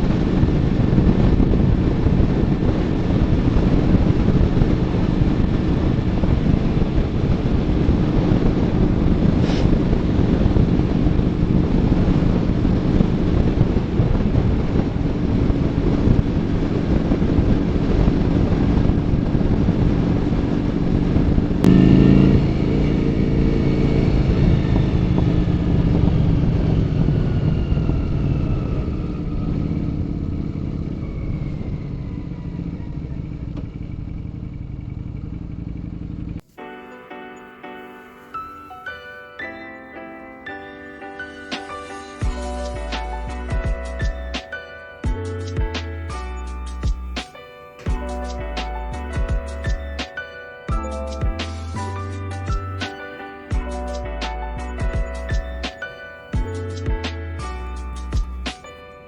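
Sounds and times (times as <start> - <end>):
motorcycle engine running: 21.6 - 27.0, 32.3 - 36.4.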